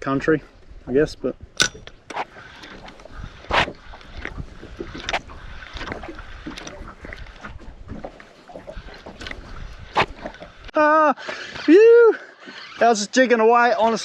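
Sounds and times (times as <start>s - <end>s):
wind: 0.0s - 14.0s
water slapping boat hull: 0.6s - 11.7s.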